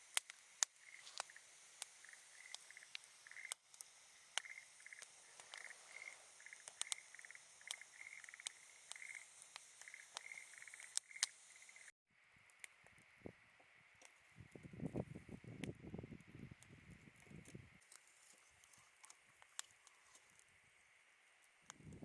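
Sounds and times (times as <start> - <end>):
faint campfire crackling: 0.0 - 22.0
frog calling in trills: 2.0 - 3.6, 4.4 - 11.9.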